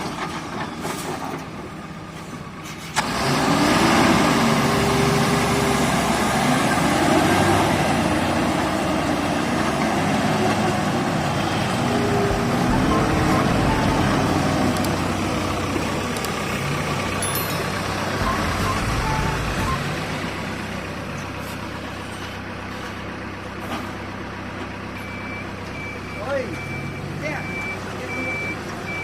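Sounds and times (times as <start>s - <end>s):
heavy diesel engine revving: 3.0s - 24.9s.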